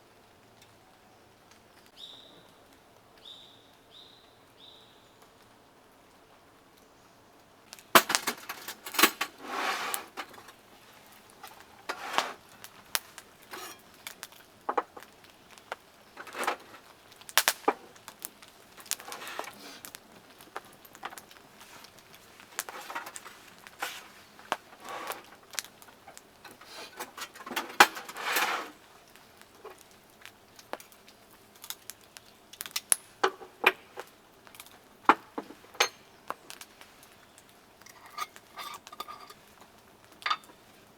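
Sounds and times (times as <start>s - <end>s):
short scrapes or rustles: 8.0s - 10.6s, 11.4s - 12.4s, 13.5s - 13.9s, 19.0s - 19.9s, 22.6s - 25.4s, 26.5s - 28.8s
cookware clinks and knocks: 13.5s - 13.8s, 35.8s - 36.0s, 37.9s - 39.4s, 40.2s - 40.6s.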